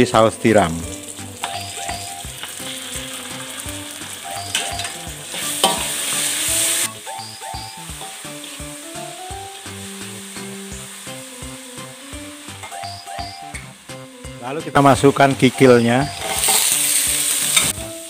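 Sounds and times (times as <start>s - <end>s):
oil sizzling in a wok: 0.5s - 18.0s
metal spatula scraping a wok: 5.3s - 6.9s, 16.1s - 17.8s.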